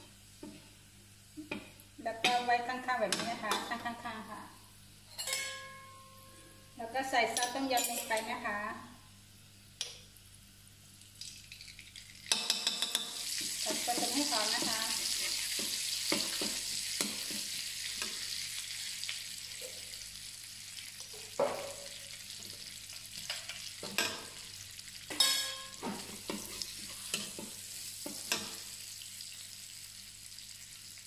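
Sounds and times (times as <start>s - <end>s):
paste sizzling in hot oil: 11.2s - 31.0s.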